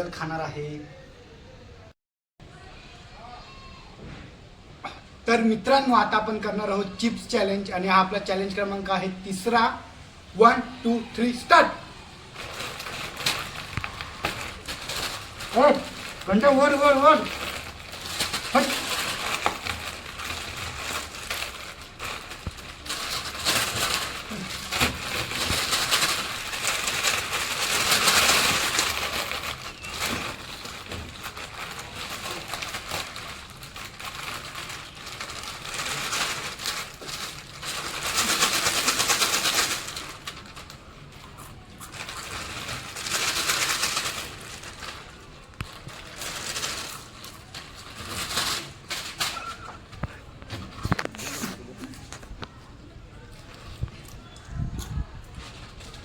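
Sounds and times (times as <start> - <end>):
plastic chips packets crinkling: 10.3 - 56.0
potato chips crunching: 10.9 - 52.5.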